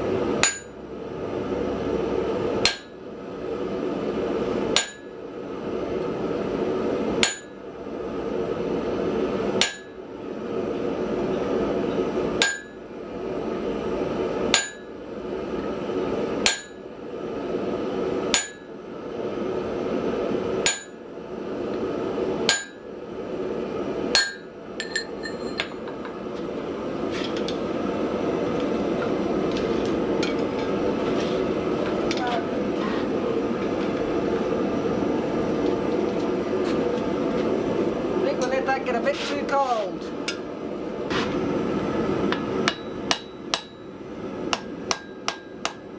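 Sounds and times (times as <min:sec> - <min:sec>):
hammer striking steel on anvil: 0:00.4 - 0:00.8, 0:02.6 - 0:03.0, 0:04.8 - 0:05.1, 0:07.2 - 0:07.6, 0:09.6 - 0:10.0, 0:12.4 - 0:12.8, 0:14.5 - 0:14.9, 0:16.5 - 0:16.8, 0:18.4 - 0:18.7, 0:20.7 - 0:21.0, 0:22.5 - 0:22.8, 0:24.2 - 0:26.2, 0:42.3 - 0:43.9, 0:44.5 - 0:45.9.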